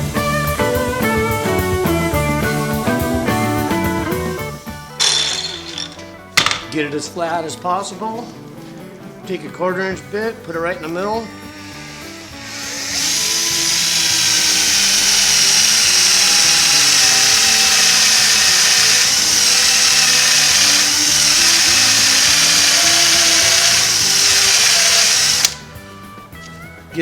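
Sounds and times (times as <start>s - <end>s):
electric drill boring into metal: 5.0s - 6.6s, 11.2s - 25.7s.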